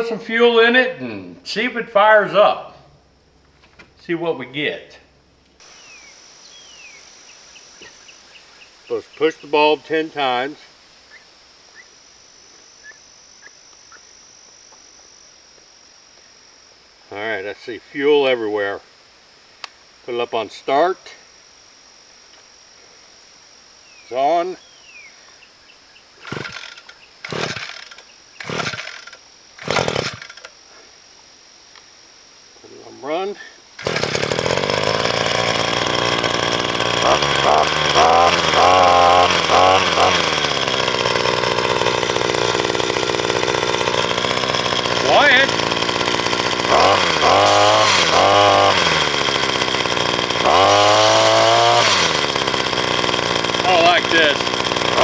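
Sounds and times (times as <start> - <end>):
small engine cranking and sputtering: 26.2 - 30.6, 33.8 - 55.0.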